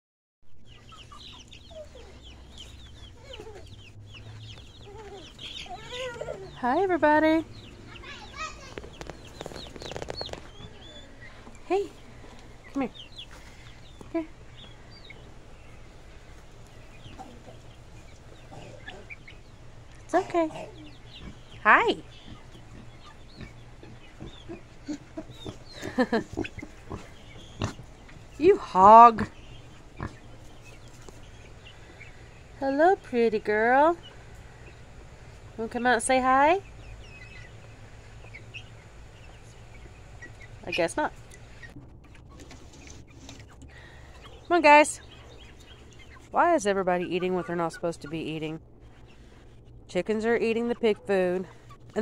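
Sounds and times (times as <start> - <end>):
chickens clucking: 0.6 - 52.0
chicks peeping: 0.6 - 52.0
steady low rumble: 6.4 - 42.4.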